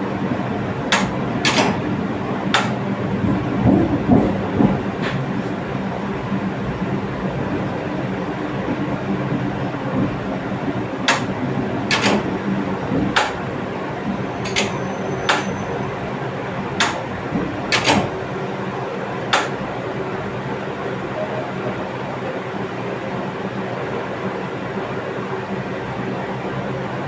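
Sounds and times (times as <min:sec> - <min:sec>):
train rumble and hum: 0:00.0 - 0:27.0
sharp clicks: 0:00.9 - 0:01.8, 0:02.5 - 0:02.8, 0:11.1 - 0:12.4, 0:13.2 - 0:13.5, 0:14.4 - 0:15.6, 0:16.8 - 0:17.1, 0:17.7 - 0:18.2, 0:19.3 - 0:19.6.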